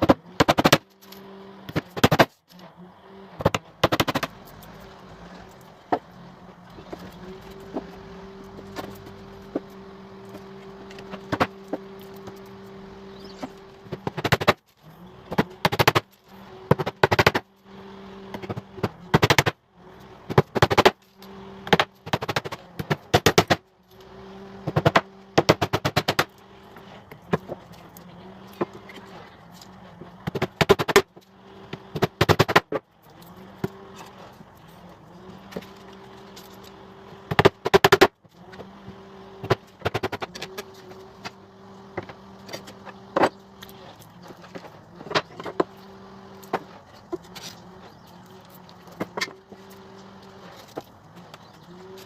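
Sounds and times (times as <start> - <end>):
hammer driving nails into wood: 0.0 - 0.9, 1.7 - 2.4, 24.6 - 26.4.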